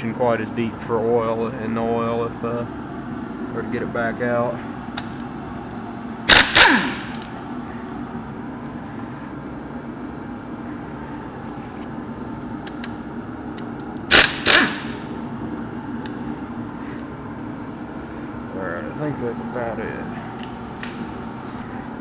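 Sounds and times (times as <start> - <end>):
shop fan hum: 0.0 - 22.0
power tool bursts winding down: 14.1 - 15.0.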